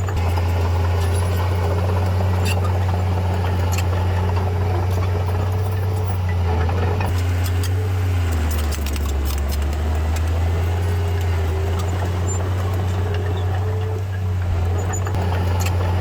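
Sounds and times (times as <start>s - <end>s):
heavy diesel engine droning: 0.0s - 16.0s
metallic clicks and rattles: 7.1s - 14.0s.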